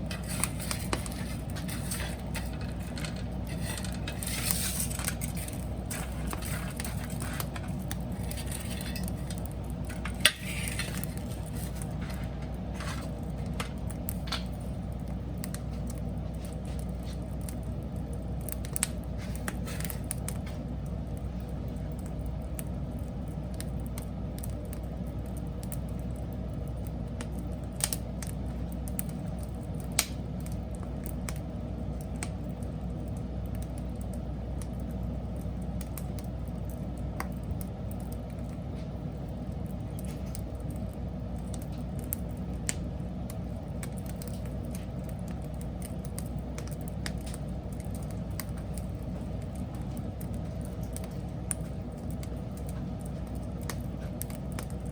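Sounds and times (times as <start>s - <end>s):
crackling wood pops: 0.0s - 54.9s
wood fire rumbling: 0.0s - 54.9s.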